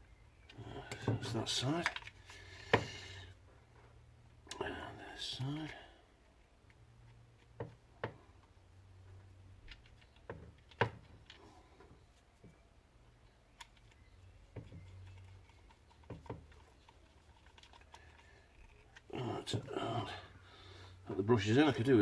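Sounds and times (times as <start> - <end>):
light clicks of grinder parts: 0.4 - 2.9, 13.5 - 19.1.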